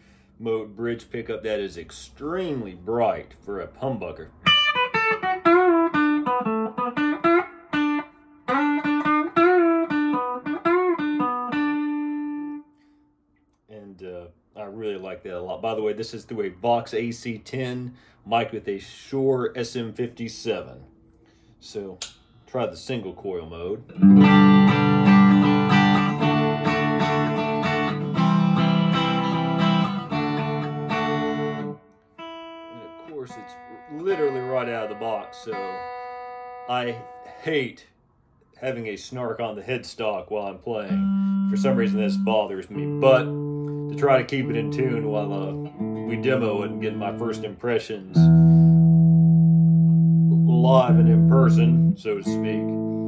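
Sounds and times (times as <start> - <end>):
electric guitar lead phrase: 4.3 - 12.6, 24.0 - 37.6, 40.8 - 53.0.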